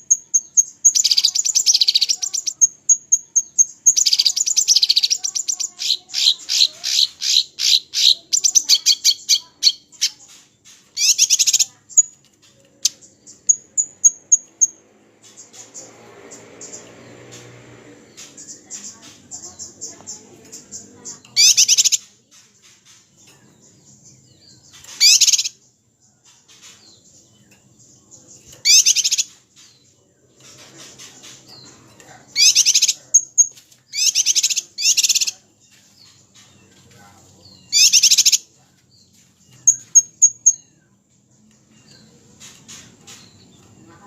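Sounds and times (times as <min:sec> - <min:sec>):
songbird trilled bursts: 0:37.6 - 0:38.5.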